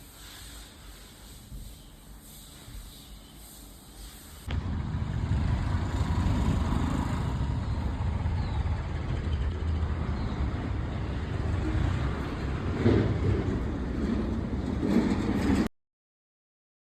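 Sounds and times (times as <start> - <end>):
motorcycle engine rumbling: 4.5 - 15.6.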